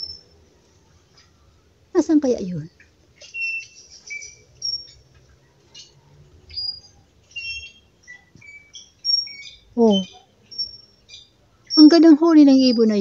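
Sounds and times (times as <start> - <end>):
birds whistling and chirping: 0.0 - 0.4, 2.8 - 13.0.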